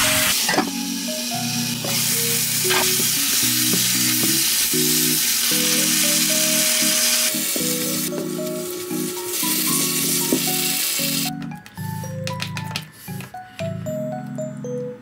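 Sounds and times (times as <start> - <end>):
food sizzling in a frying pan: 0.0 - 11.3
light background music: 0.0 - 15.0.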